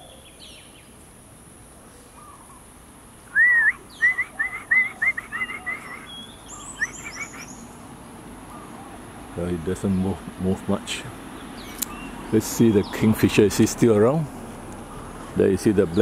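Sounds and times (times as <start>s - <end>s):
songbird singing: 0.0s - 16.0s
high bird chirps: 3.3s - 7.8s, 11.4s - 12.2s.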